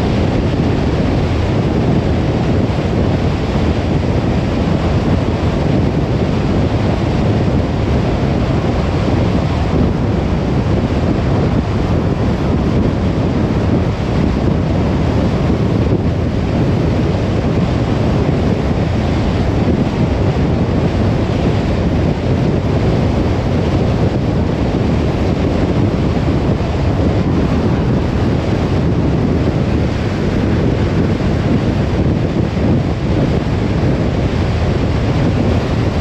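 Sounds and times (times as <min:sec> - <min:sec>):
tyre and wind noise: 0:00.0 - 0:36.0.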